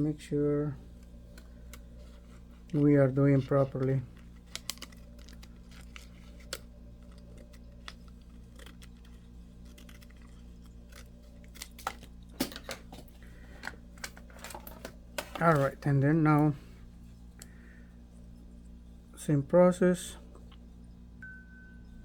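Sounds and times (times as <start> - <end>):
steady low hum: 0.0 - 22.0
scissors snipping: 4.4 - 12.1.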